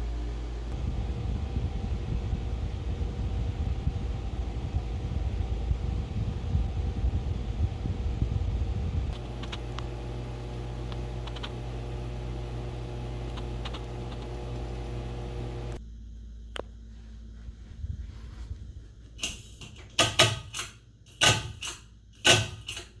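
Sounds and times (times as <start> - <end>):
rumble of moving air: 0.0 - 9.5, 16.7 - 19.2
ceiling fan motor hum: 0.0 - 23.0.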